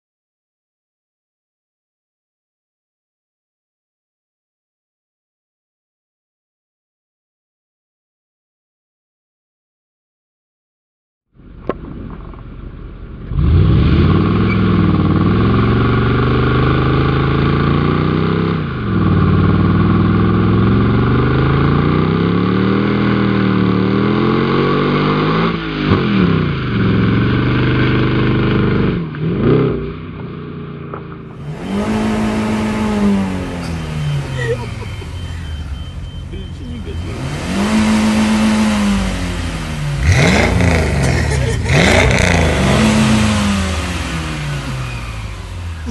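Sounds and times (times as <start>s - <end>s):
loud car engine revving: 11.5s - 45.9s.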